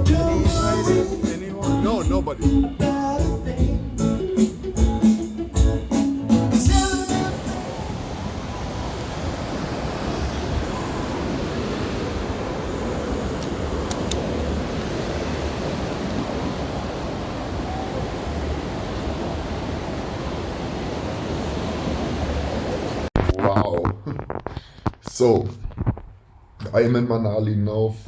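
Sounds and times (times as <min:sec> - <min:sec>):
water rushing: 0:06.6 - 0:23.2.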